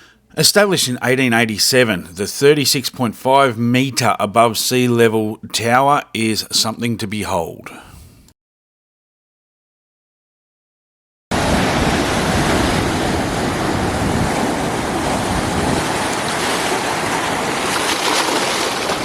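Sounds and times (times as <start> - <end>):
ocean surf: 11.3 - 19.0
wind buffeting microphone: 11.4 - 19.0.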